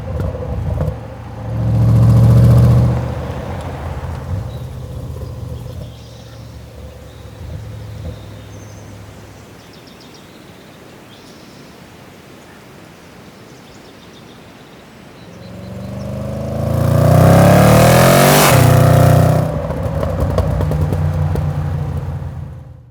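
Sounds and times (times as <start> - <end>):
motor machine passing by: 0.0 - 9.4, 15.4 - 22.9.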